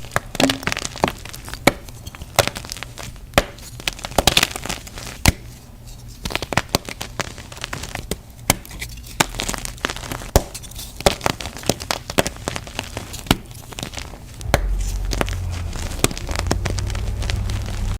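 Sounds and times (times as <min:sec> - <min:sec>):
chalk crunching: 0:00.0 - 0:17.9
steady low rumble: 0:14.2 - 0:17.9.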